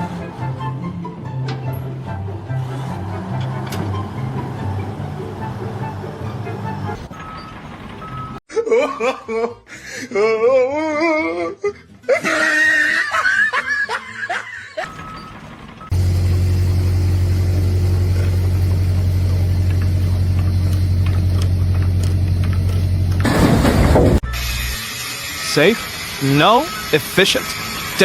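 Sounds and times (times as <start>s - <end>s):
person laughing: 8.5s - 14.9s
loud pulsing low hum: 15.9s - 23.2s.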